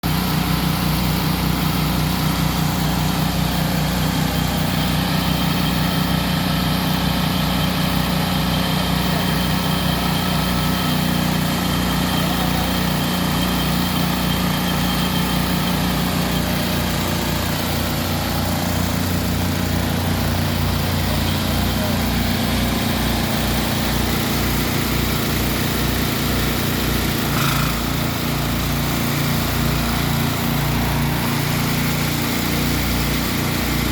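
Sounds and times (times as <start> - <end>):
engine idling: 0.0 - 33.9.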